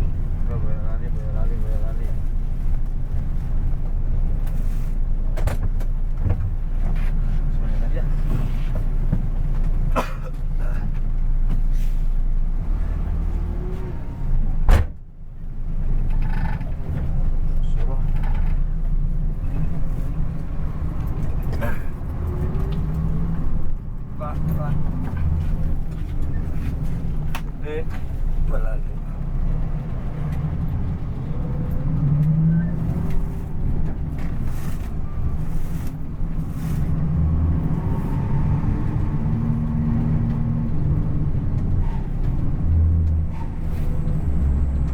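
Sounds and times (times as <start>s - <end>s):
bus engine rumbling: 0.0s - 44.9s
road noise: 0.0s - 44.9s.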